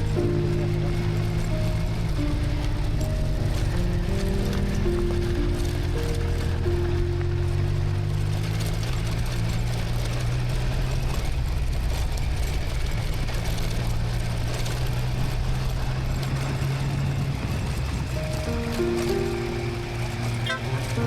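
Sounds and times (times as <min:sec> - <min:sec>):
constant hiss: 0:00.0 - 0:11.4, 0:12.4 - 0:21.0
motorcycle engine running: 0:00.0 - 0:21.0.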